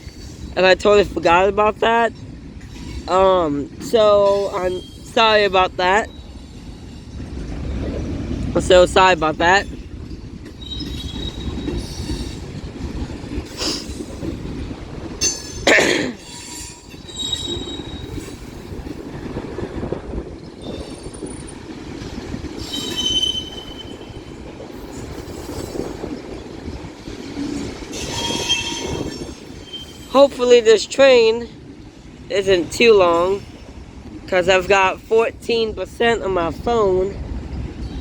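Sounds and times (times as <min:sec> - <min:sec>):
freight train rumbling over rails: 0:00.0 - 0:38.0
high-pitched wheel squeals: 0:16.3 - 0:18.3.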